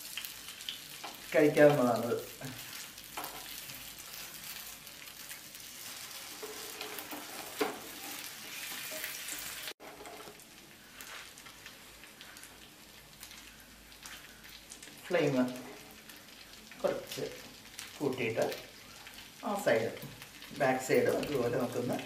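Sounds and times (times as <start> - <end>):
eggs sizzling in oil: 0.0 - 22.0.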